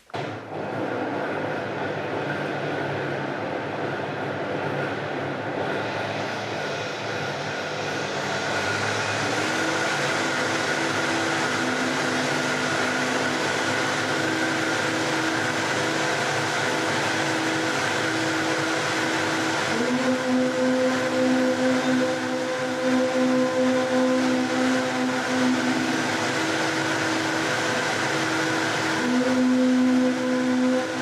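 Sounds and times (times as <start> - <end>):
blender running: 0.0 - 3.2, 5.7 - 31.0.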